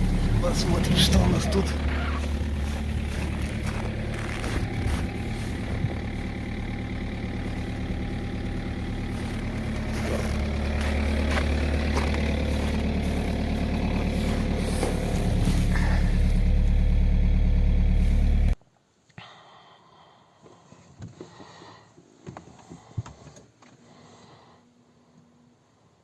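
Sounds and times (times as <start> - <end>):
diesel engine idling: 0.0 - 18.6.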